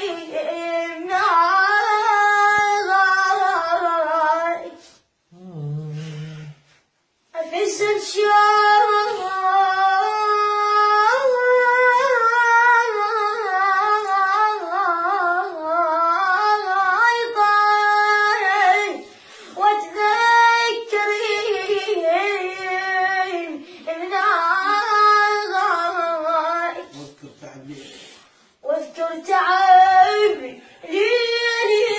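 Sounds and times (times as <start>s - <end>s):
solo voice singing a lament: 0.0s - 6.7s
singer breathing: 19.0s - 19.6s, 27.7s - 28.6s.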